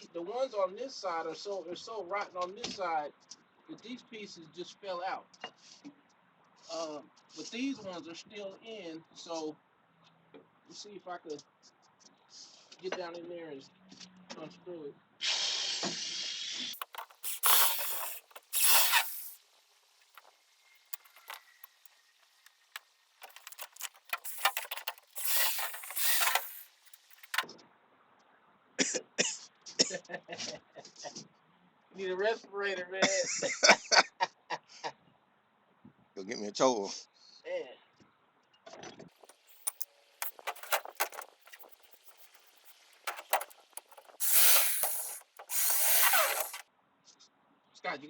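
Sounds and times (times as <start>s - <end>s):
metal tools clinking and rattling: 16.8s - 19.4s, 20.9s - 21.9s, 23.2s - 27.4s, 39.2s - 46.6s
loud scraping strokes: 23.2s - 27.4s, 39.5s - 46.6s.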